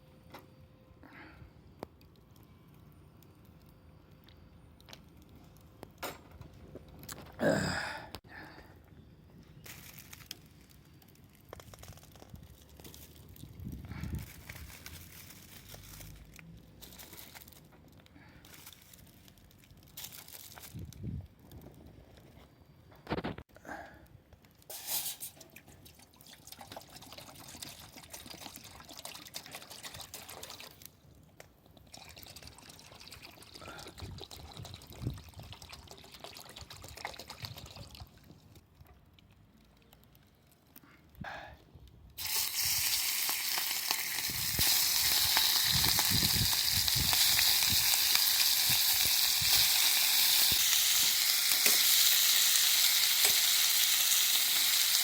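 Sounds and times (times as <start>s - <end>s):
pan sizzling: 42.2s - 55.0s.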